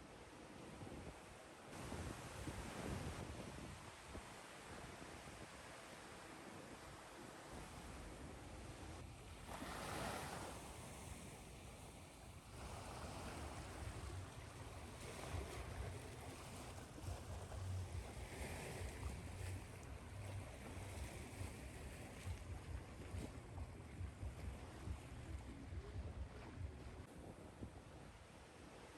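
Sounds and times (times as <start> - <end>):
ocean waves washing in: 1.7 - 28.9
low uneven rumble: 8.0 - 28.2.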